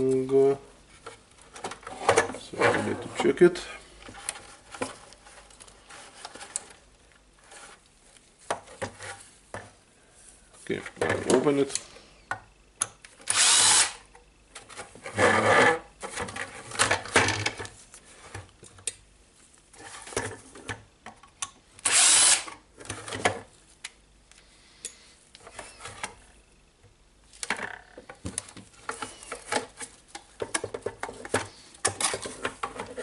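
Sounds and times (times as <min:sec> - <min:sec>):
cordless drill running: 0:13.3 - 0:14.0, 0:21.8 - 0:22.5
plastic parts clicking and rattling: 0:16.0 - 0:19.0, 0:27.3 - 0:33.0.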